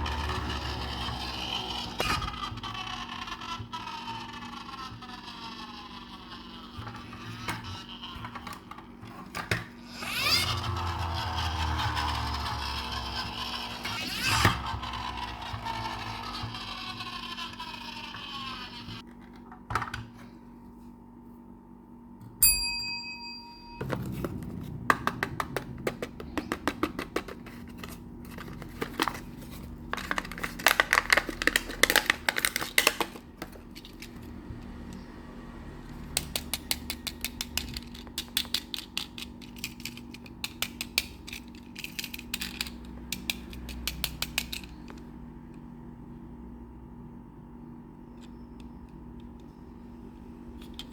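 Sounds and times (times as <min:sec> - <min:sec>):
toy trucks clicking and rattling: 0:00.0 - 0:19.0, 0:23.9 - 0:35.0, 0:35.8 - 0:45.2
ringing ping: 0:22.4 - 0:23.9.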